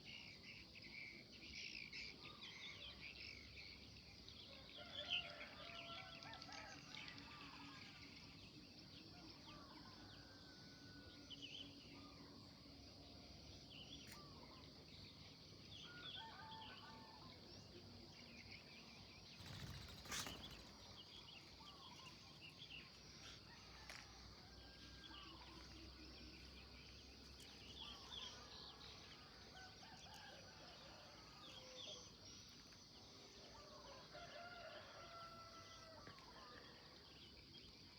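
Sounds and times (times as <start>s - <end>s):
songbirds chirping and calling: 9.2s - 24.1s.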